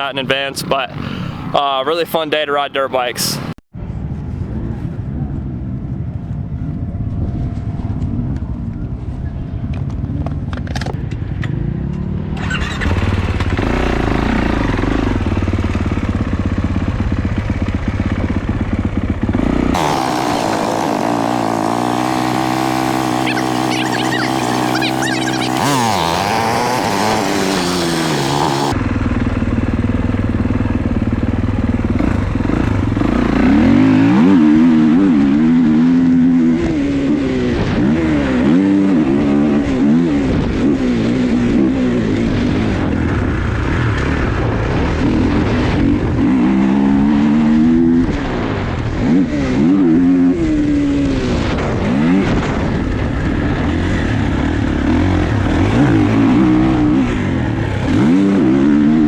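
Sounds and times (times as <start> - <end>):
dirt bike engine revving: 0.0 - 1.5, 12.2 - 16.2, 19.2 - 29.0, 31.8 - 42.8, 53.4 - 59.0.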